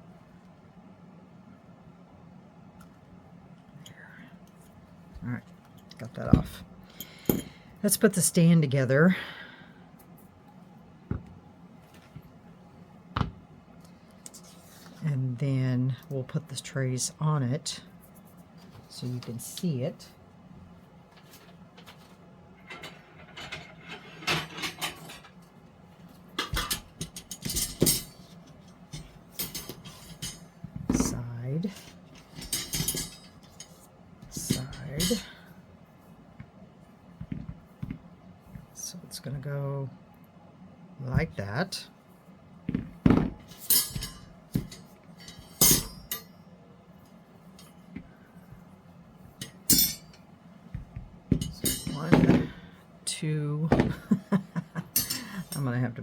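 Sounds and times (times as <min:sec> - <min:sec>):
tray stand parts clinking: 0:22.6 - 0:25.4, 0:26.4 - 0:35.4, 0:43.4 - 0:46.3, 0:49.4 - 0:50.2, 0:51.3 - 0:52.6.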